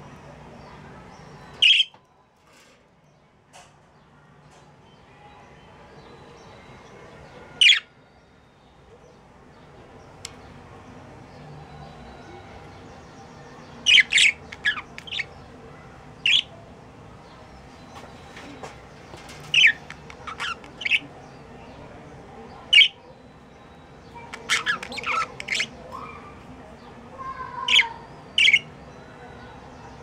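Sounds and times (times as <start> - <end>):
budgerigars squawking and chirping: 1.6 - 1.9, 7.6 - 7.8, 13.8 - 15.5, 16.2 - 16.5, 19.2 - 21.2, 22.7 - 23.0, 24.1 - 26.4, 27.7 - 28.8.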